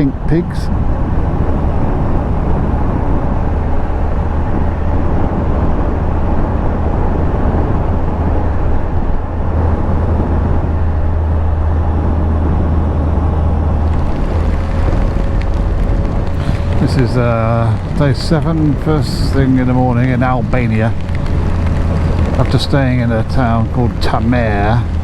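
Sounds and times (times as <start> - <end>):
motorcycle engine cruising: 0.0 - 25.0
wind rush on microphone: 0.0 - 25.0.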